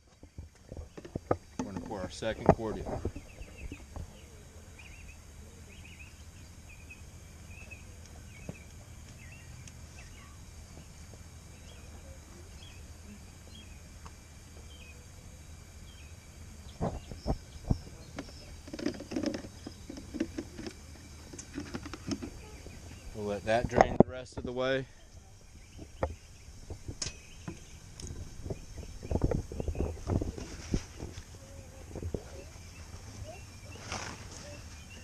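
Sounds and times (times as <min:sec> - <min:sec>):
small birds chirping: 0:00.0 - 0:35.0
steady low hum: 0:00.0 - 0:35.0
knocks and handling sounds: 0:00.1 - 0:03.2, 0:18.1 - 0:22.4.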